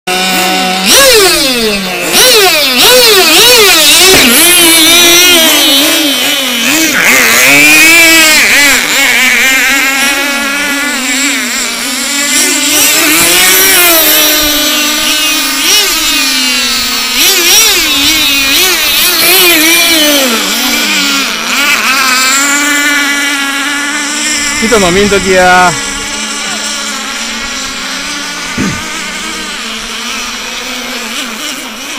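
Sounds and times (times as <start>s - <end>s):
outboard boat engines racing: 0.1s - 31.9s.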